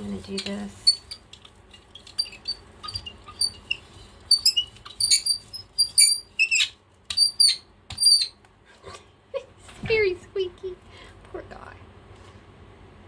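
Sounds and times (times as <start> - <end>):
brayer roller squeaking: 0.0 - 8.4.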